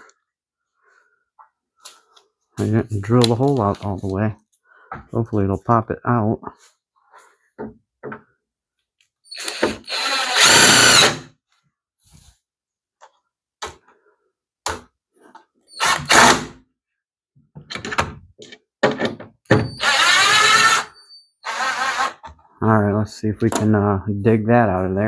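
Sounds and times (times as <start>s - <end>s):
power drill whining: 9.3s - 11.3s, 15.7s - 16.4s, 19.7s - 22.3s.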